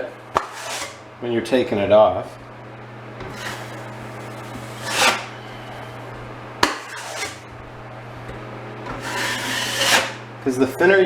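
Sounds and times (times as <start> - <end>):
trowel scraping wall: 0.0 - 1.1, 3.1 - 10.3.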